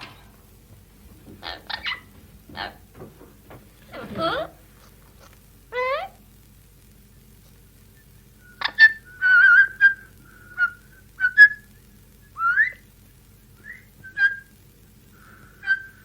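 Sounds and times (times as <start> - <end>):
parrot whistling and chirping: 1.5 - 2.8, 8.4 - 11.7, 12.3 - 12.8, 13.6 - 14.5, 15.6 - 16.0.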